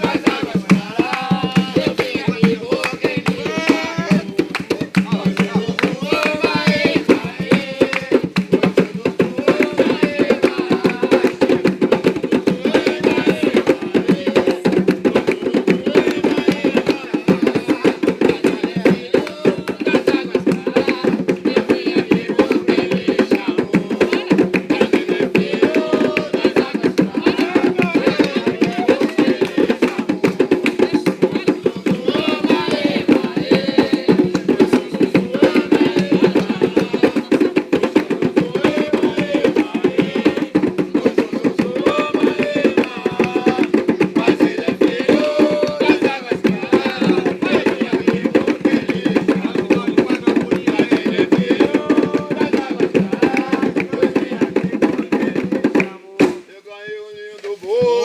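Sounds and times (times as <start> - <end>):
voices: 0.0 - 8.0, 56.1 - 58.0
hand drums playing fast rhythm: 0.0 - 56.5.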